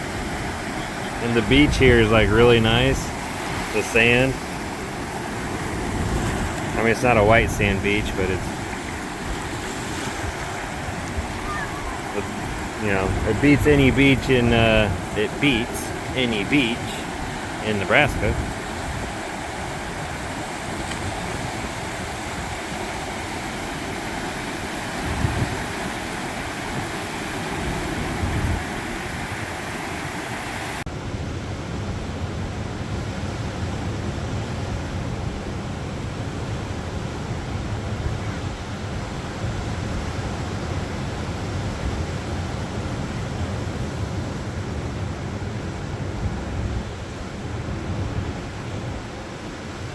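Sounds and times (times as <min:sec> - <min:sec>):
surf washing onto beach: 0:00.0 - 0:30.8
wind buffeting microphone: 0:04.4 - 0:16.2, 0:24.9 - 0:25.8, 0:26.7 - 0:29.5.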